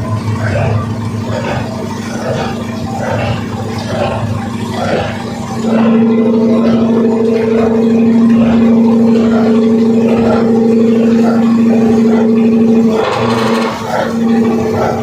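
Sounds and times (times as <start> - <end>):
boat horn long low blast: 4.3 - 15.0.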